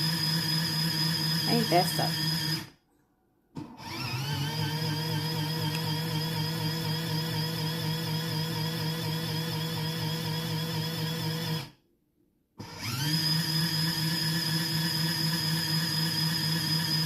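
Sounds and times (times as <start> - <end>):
motor spinning up whine: 0.0 - 2.8, 3.6 - 11.7, 12.6 - 17.0
small electric motor humming: 3.8 - 9.2.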